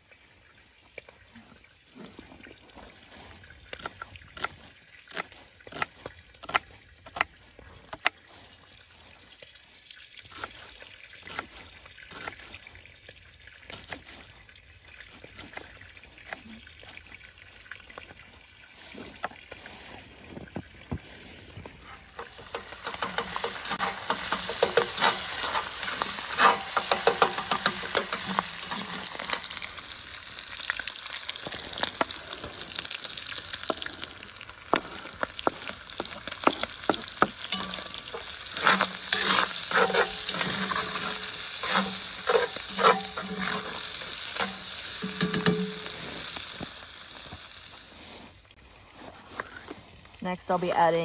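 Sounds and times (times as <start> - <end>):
utensil stirring and scraping: 21.0 - 47.3
meat sizzling in a pot: 22.0 - 48.6.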